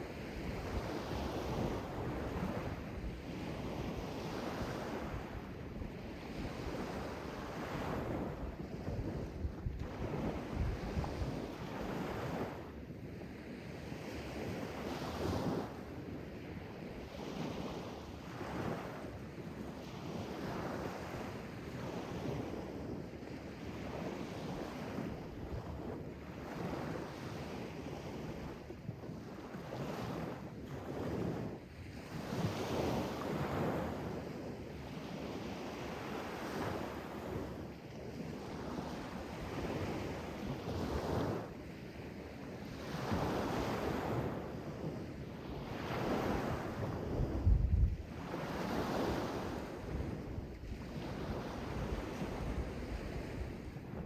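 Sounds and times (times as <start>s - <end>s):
sea waves breaking on shore: 34.9s - 54.0s
wind buffeting microphone: 45.7s - 54.0s.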